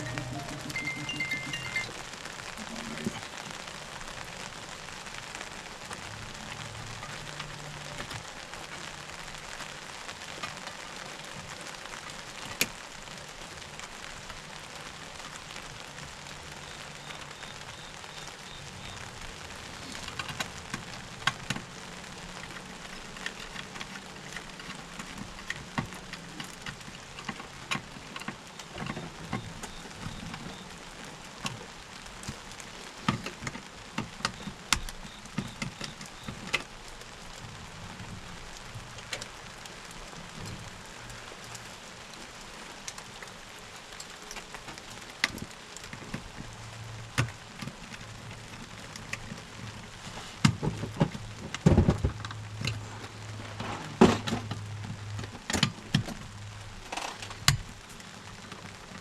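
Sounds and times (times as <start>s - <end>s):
low steady hum: 0.0s - 3.2s
rain falling: 0.0s - 59.0s.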